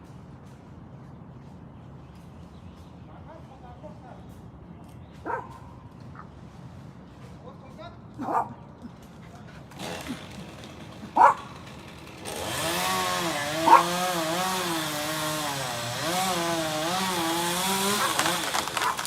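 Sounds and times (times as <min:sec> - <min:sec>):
chainsaw cutting wood: 0:09.6 - 0:19.0.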